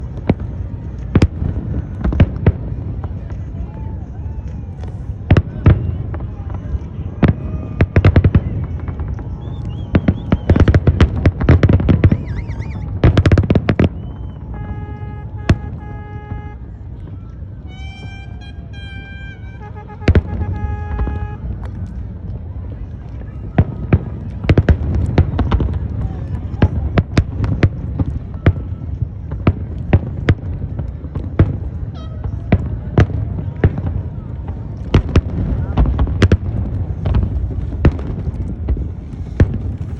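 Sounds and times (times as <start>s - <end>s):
fireworks crackling: 0.0s - 39.9s
warbling firework whistle: 3.6s - 22.0s, 31.7s - 39.9s
firework bang: 7.2s - 21.9s, 29.2s - 39.9s.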